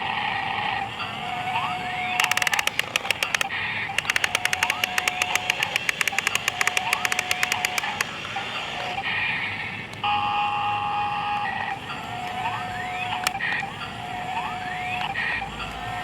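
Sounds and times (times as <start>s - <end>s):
excavator rapid clicking: 2.0s - 8.9s.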